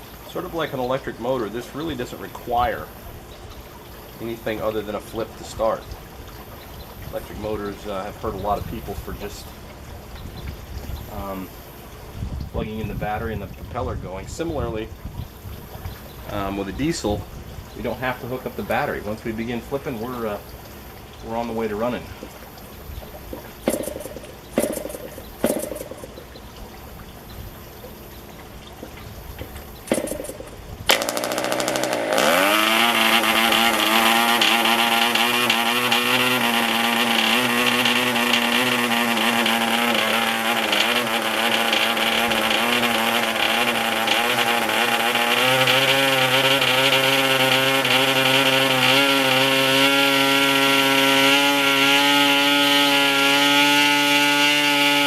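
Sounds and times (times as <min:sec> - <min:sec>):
model engine coughing and running: 0:23.1 - 0:26.4, 0:28.8 - 0:55.0.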